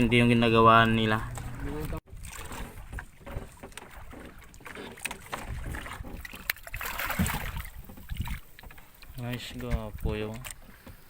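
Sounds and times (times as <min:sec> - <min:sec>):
water splashing around boat: 0:00.0 - 0:11.0.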